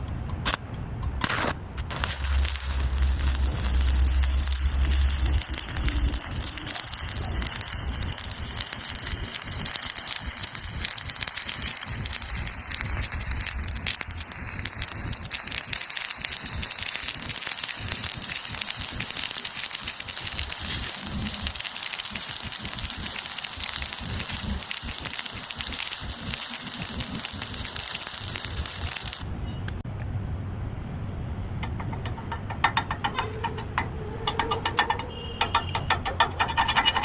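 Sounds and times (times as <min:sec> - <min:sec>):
welding arc crackling: 0:01.2 - 0:29.3, 0:31.6 - 0:37.0.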